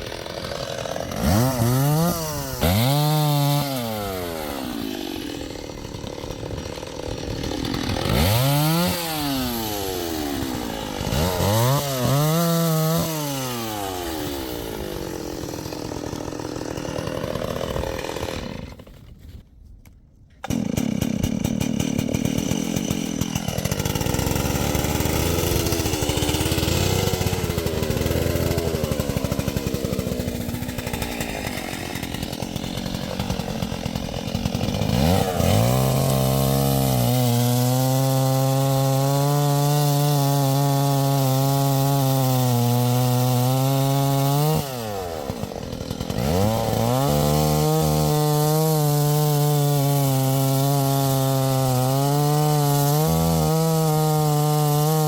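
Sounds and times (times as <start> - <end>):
chainsaw running: 0.0 - 19.4, 20.4 - 55.0.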